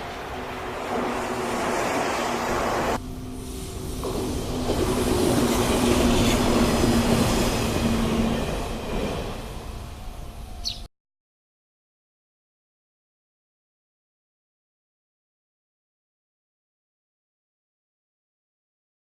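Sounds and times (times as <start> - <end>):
electric train passing: 0.0 - 10.9
rail and wheel noise: 0.0 - 10.9.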